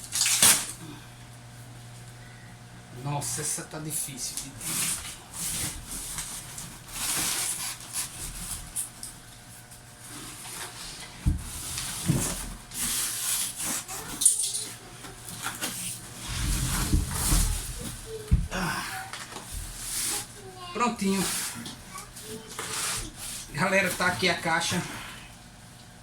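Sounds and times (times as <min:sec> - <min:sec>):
packaging rustling and scraping: 0:00.0 - 0:00.8, 0:04.3 - 0:18.4, 0:19.1 - 0:20.4, 0:21.1 - 0:24.7.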